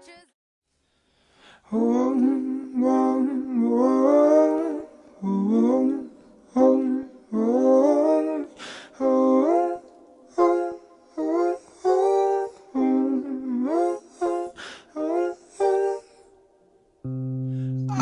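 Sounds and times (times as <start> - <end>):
person humming wordlessly: 17.1 - 18.0.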